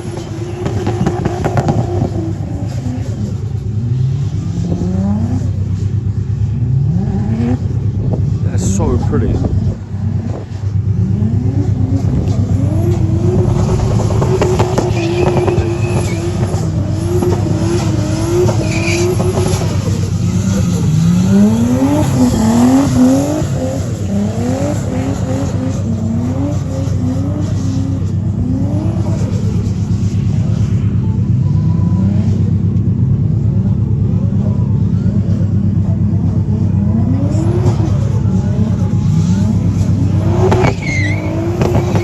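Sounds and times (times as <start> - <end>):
car engine revving: 0.0 - 42.0
steady low drone: 2.4 - 18.4.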